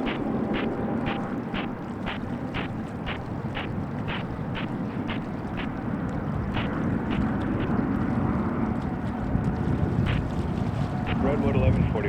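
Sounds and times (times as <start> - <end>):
jet engines roaring: 0.0 - 8.6
wind on microphone: 0.0 - 12.0.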